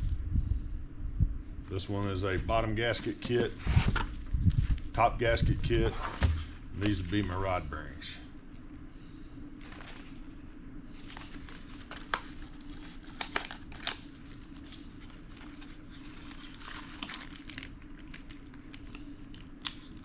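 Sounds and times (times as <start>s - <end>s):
steady low hum: 0.0s - 20.0s
plastic packaging crinkling: 9.6s - 20.0s.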